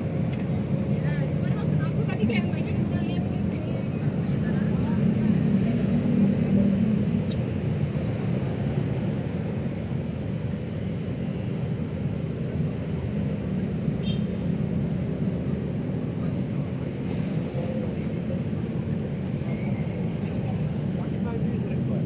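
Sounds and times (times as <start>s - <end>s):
road traffic rumble: 0.1s - 22.0s
faint high squeaks: 8.4s - 9.0s.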